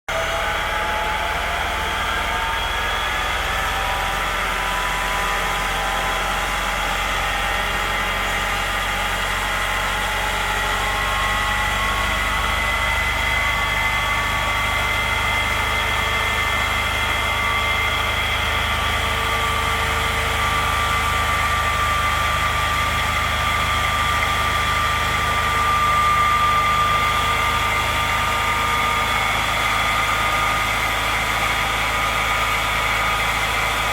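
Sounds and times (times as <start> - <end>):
fire truck engine running: 0.1 - 33.9.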